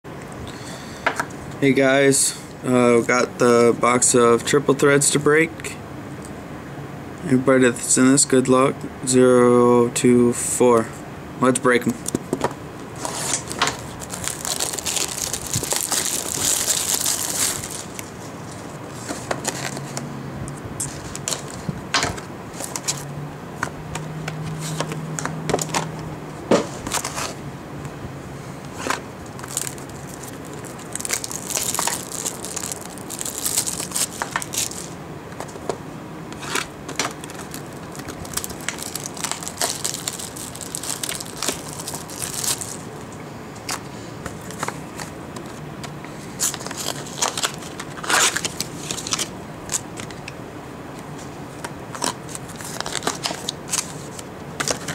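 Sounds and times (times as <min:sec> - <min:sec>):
plastic wrapping crinkling: 0:13.0 - 0:18.6, 0:28.7 - 0:35.7, 0:36.4 - 0:42.9, 0:46.4 - 0:50.2, 0:51.9 - 0:54.9.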